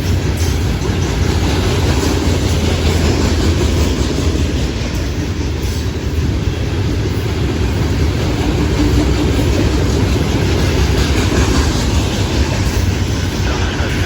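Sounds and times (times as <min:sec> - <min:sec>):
freight train wheels rumbling on rail: 0:00.0 - 0:14.0.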